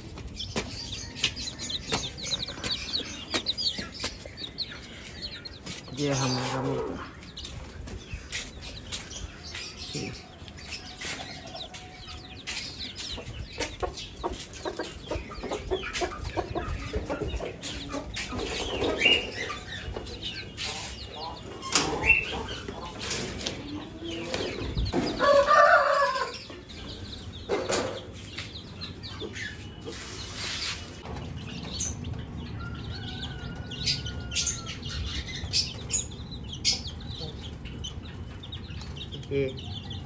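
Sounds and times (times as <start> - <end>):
chickens clucking: 0.0 - 40.0.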